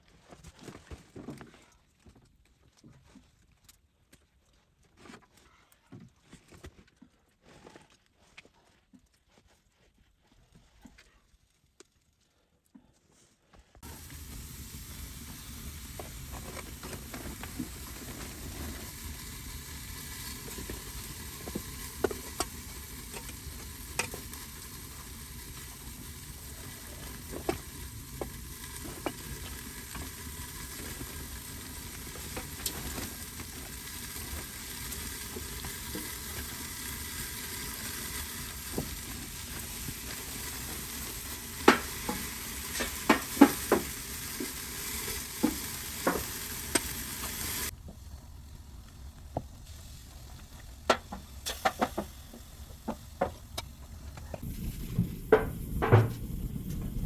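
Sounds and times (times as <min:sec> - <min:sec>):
wood fire crackling and popping: 0:13.8 - 0:57.0.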